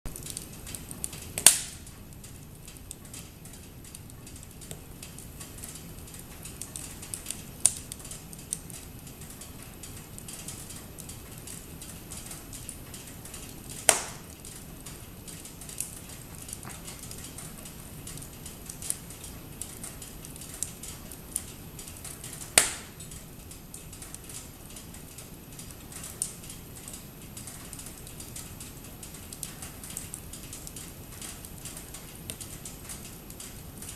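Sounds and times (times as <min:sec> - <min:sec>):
fire popping sharply: 0:00.1 - 0:03.4, 0:04.4 - 0:14.6, 0:15.3 - 0:23.1
wood fire crackling: 0:00.1 - 0:33.9.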